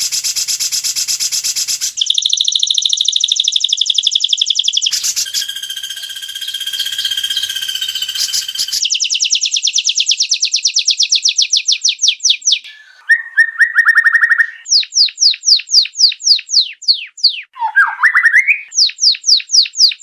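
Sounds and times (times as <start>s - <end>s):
bird song rapid sharp notes: 0.0s - 20.0s.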